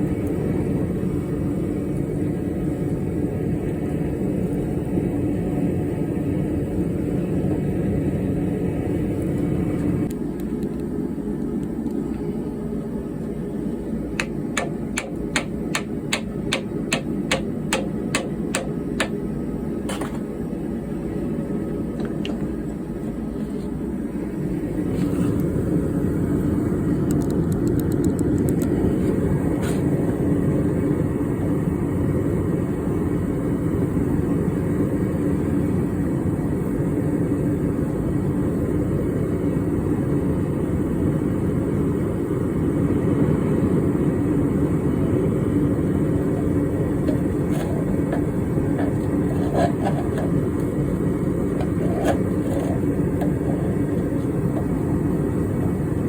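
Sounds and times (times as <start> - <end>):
hammer strikes: 14.2 - 19.2
steady low rumble: 41.8 - 56.0.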